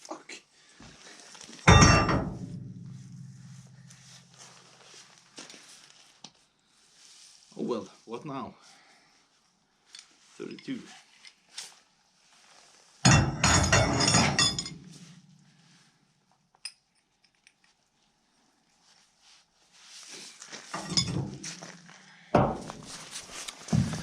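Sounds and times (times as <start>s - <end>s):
metal hand tools clattering: 1.7s - 2.4s, 13.1s - 14.9s, 20.8s - 21.7s.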